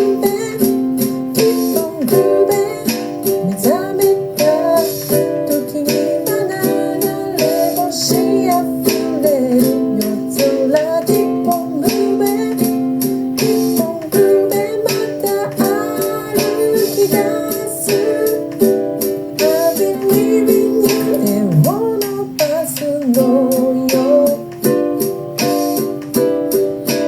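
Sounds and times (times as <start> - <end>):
woman singing: 0.0 - 25.0
ukulele strumming chords: 0.0 - 27.0.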